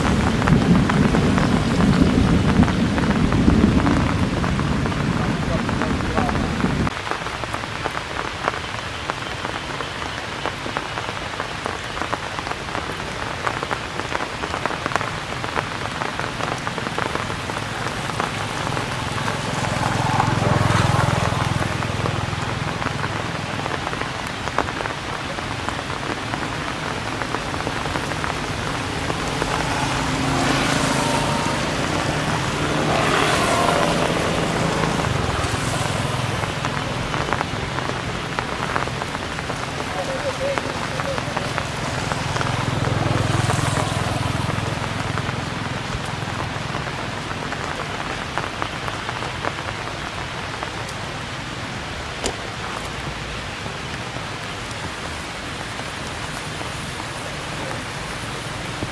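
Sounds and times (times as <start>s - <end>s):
rain pattering on surfaces: 0.0s - 58.9s.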